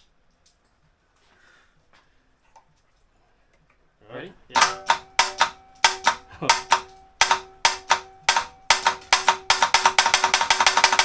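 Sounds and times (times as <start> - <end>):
engine firing with sharp pops: 4.6 - 11.0.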